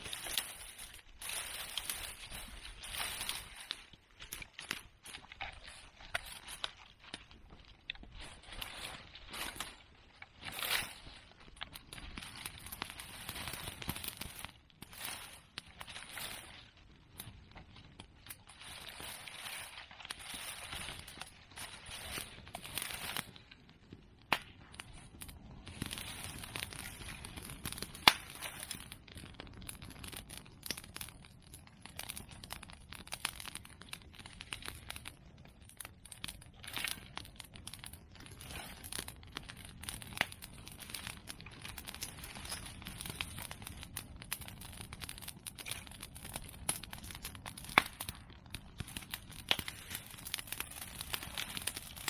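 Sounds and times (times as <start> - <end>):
fire crackling: 0.0 - 52.0
sharp pops: 24.2 - 25.7, 26.8 - 28.4.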